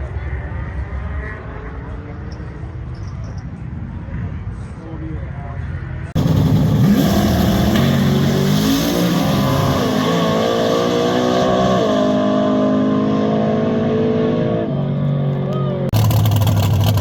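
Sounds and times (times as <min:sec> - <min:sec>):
car engine revving: 0:06.2 - 0:17.0.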